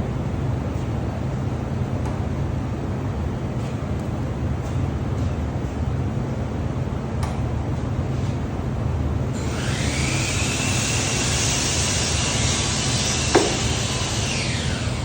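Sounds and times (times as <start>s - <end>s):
steady low hum: 0.0s - 15.0s
click: 7.2s - 7.4s
spray gun hissing: 10.4s - 14.6s.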